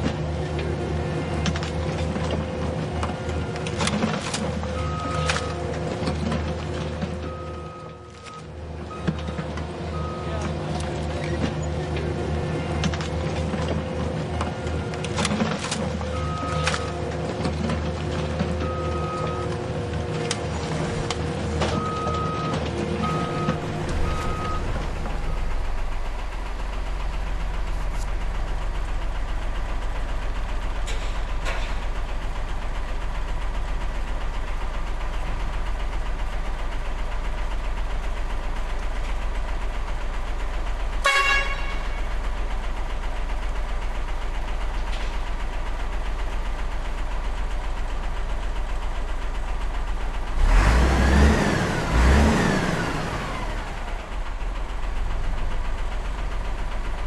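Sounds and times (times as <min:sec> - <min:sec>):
model truck engine hum: 0:00.0 - 0:57.0
short horn toot: 0:41.0 - 0:42.0.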